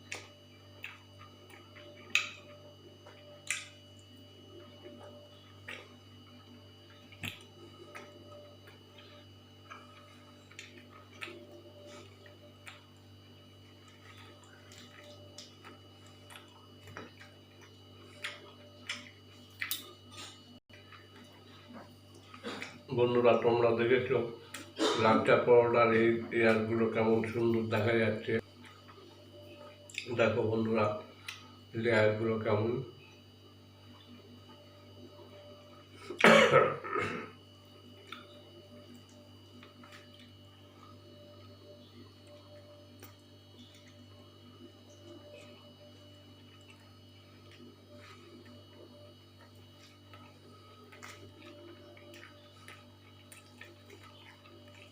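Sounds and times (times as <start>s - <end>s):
person chewing with lip smacks: 0.0s - 4.1s, 4.8s - 6.0s, 6.9s - 13.1s, 13.7s - 22.9s, 28.6s - 30.1s, 37.9s - 54.9s
steady low hum: 0.0s - 54.9s
person clearing throat: 22.4s - 22.8s, 24.8s - 25.2s, 36.0s - 37.4s.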